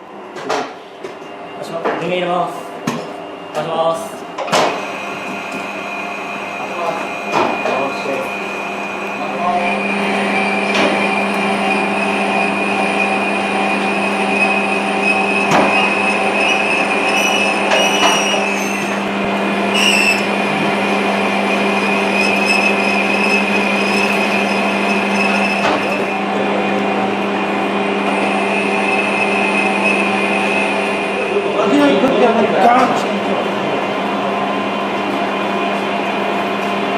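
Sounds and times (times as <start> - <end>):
metalworking lathe humming and whining: 3.2 - 36.9
cutting tool squealing: 10.0 - 19.1, 19.7 - 26.2.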